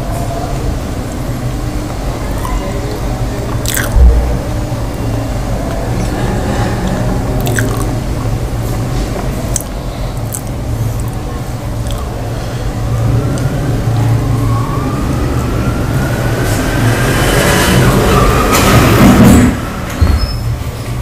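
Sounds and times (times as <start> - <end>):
close-miked chewing: 3.5 - 4.0, 6.8 - 8.3, 9.5 - 11.2, 11.8 - 12.1
low thump: 3.9 - 4.7.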